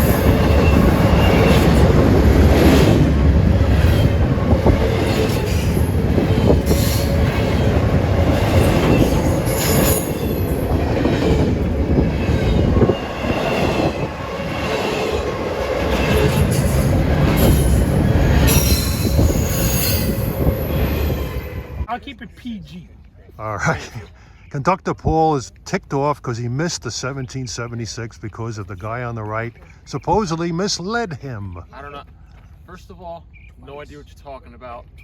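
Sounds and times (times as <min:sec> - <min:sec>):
high wheel squeal: 0:00.0 - 0:01.9, 0:15.9 - 0:21.9
train wheels rumbling on rails: 0:00.0 - 0:21.9.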